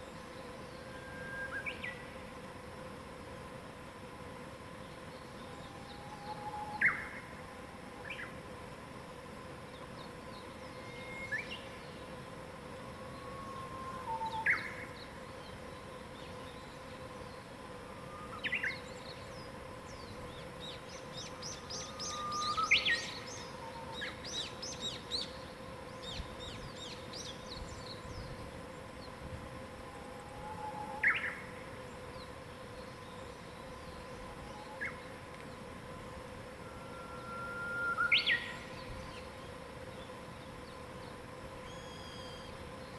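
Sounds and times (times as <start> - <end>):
faint steady hum: 0.0 - 42.9
bird whistling song: 5.9 - 7.2, 10.8 - 11.7, 13.2 - 15.0, 20.6 - 25.3, 30.4 - 31.4, 36.6 - 39.3, 41.7 - 42.6
bird twittering chirps: 18.1 - 28.3, 41.6 - 42.6.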